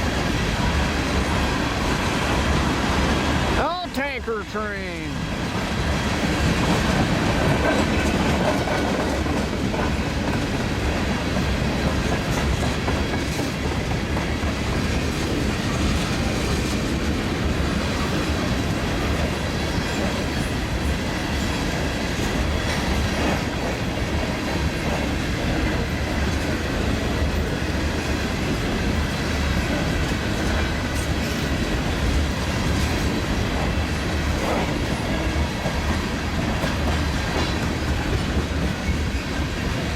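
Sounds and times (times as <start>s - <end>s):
freight train rumbling past: 0.0s - 39.9s
wheels clicking over rail joints: 5.8s - 20.5s.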